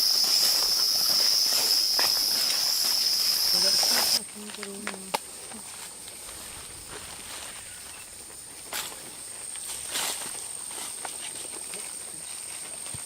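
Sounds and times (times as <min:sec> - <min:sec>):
high-pitched insect drone: 0:00.0 - 0:12.4
rustles: 0:00.0 - 0:13.0.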